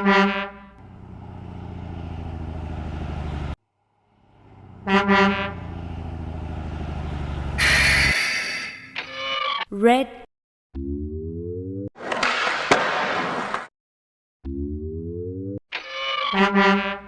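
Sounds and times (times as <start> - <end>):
truck horn toots: 0.0 - 0.8, 4.6 - 6.1, 7.5 - 8.9
truck engine running: 0.6 - 8.2
loud hiss-like burst: 7.6 - 8.8.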